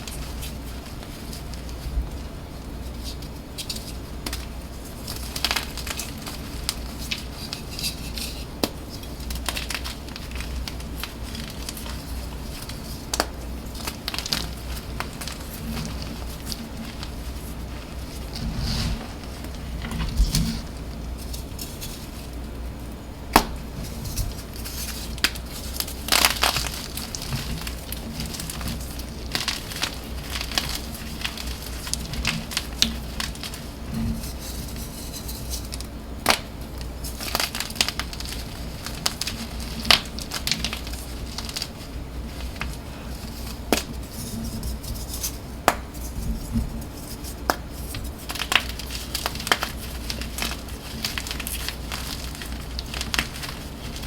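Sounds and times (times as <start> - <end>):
chalk blocks crushed and crumbling: 47.5 - 54.0.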